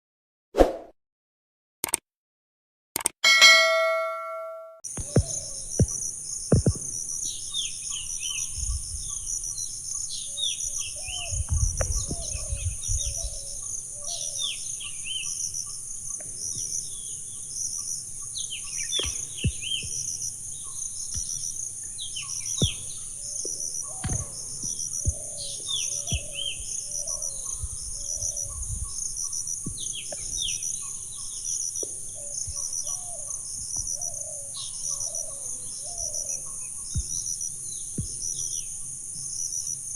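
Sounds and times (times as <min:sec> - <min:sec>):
birds calling: 0:03.4 - 0:38.9
crickets pulsing: 0:04.9 - 0:39.9
insect drone: 0:04.9 - 0:39.9
low wind rumbles: 0:08.1 - 0:09.8, 0:11.0 - 0:13.7, 0:27.4 - 0:29.8.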